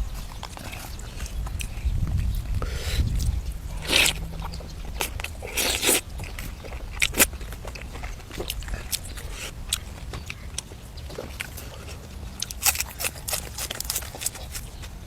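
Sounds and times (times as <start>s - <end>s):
person chewing: 0.1s - 14.9s
loud crunching bites: 3.2s - 9.9s, 12.4s - 14.7s.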